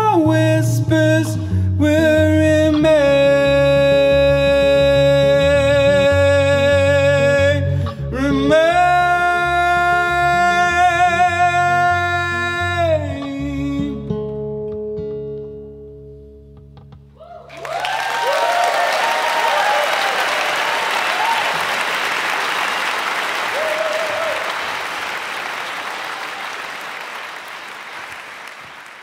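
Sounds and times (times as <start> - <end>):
acoustic guitar: 0.0 - 17.2.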